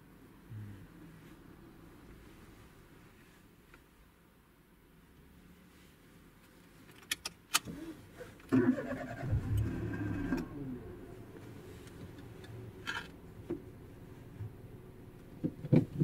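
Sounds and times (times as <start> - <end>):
car engine starting and idling: 6.9 - 16.0.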